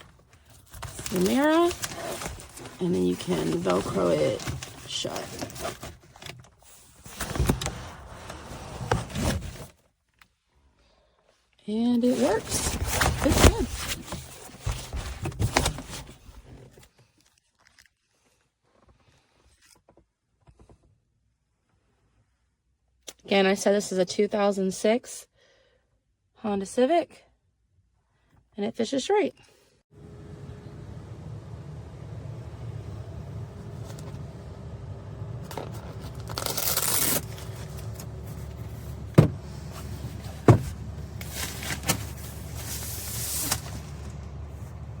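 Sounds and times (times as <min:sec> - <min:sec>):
steady low hum: 0:30.0 - 0:45.0
fabric sun shade rustling: 0:35.4 - 0:45.0.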